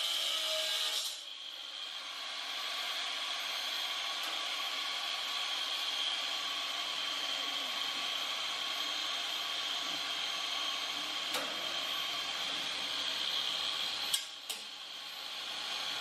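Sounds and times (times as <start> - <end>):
angle grinder cutting wire: 9.9 - 14.7.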